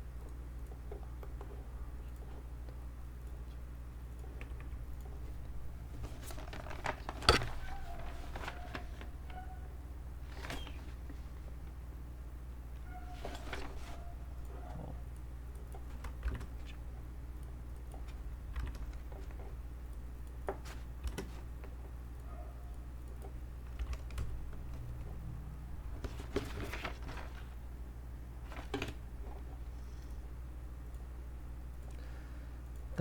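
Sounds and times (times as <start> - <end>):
steady low hum: 0.0 - 33.0
computer keyboard typing: 15.2 - 16.8.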